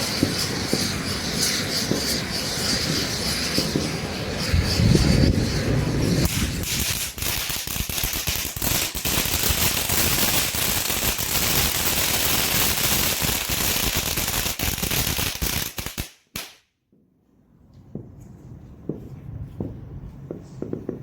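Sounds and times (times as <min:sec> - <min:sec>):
fountain firework hissing and crackling: 0:00.0 - 0:16.6.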